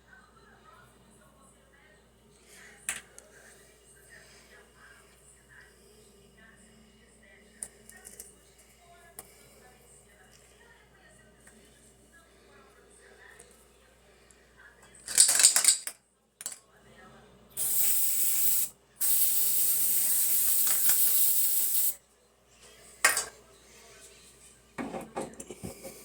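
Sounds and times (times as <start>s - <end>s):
spray hissing: 17.6s - 22.0s.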